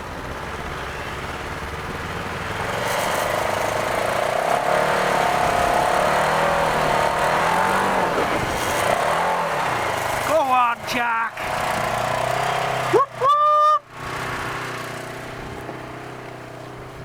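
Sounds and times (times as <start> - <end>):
vehicle engine revving: 0.0 - 13.3, 13.9 - 17.0.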